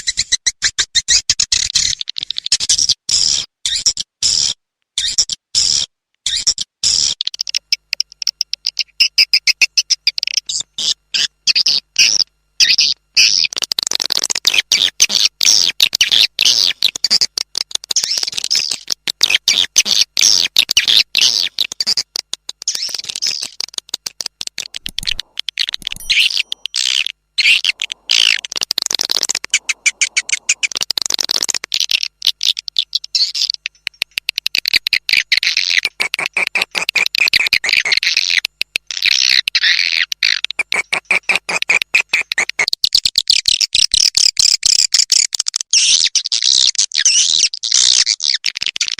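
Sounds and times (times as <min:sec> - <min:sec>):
swiftlets twittering: 0:13.2 - 0:38.4.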